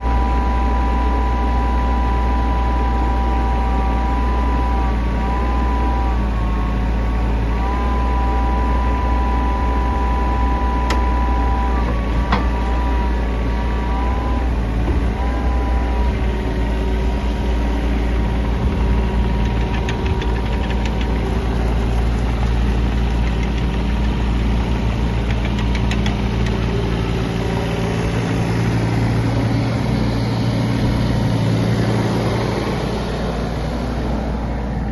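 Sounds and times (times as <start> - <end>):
excavator diesel engine running: 0.0 - 34.9
wavering whine: 0.0 - 34.9.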